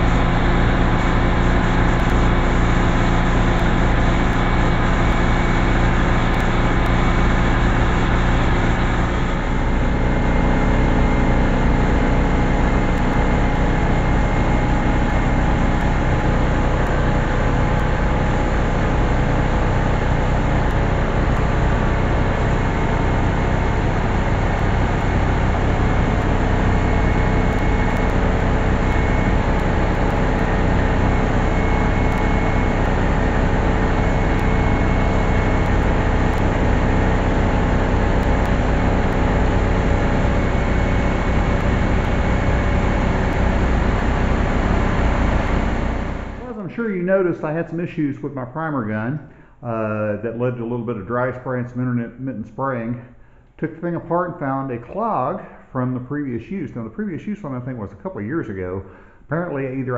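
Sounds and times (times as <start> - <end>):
spray gun hissing: 0.0 - 8.2
air compressor humming: 0.0 - 46.8.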